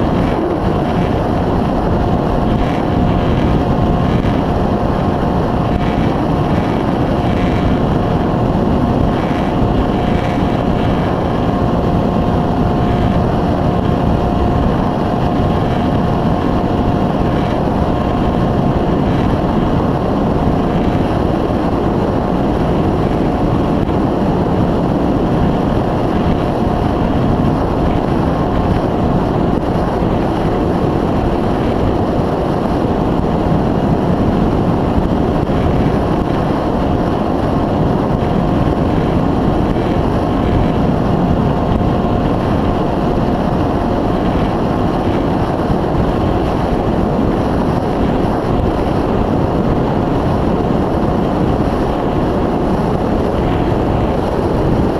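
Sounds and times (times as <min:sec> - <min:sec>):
wind rumble on microphone: 0:00.0 - 0:54.9.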